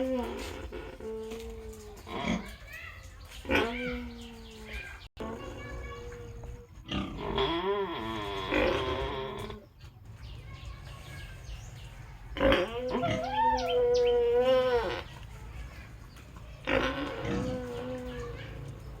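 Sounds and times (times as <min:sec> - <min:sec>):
pig squealing calls: 0:06.8 - 0:09.6, 0:12.4 - 0:15.2, 0:16.6 - 0:18.5.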